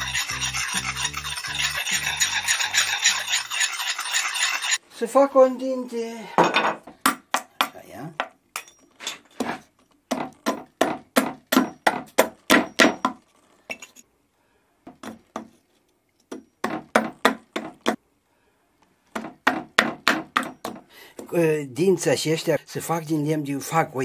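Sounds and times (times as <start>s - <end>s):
hatchet chopping wood: 10.1s - 13.2s, 19.2s - 20.8s.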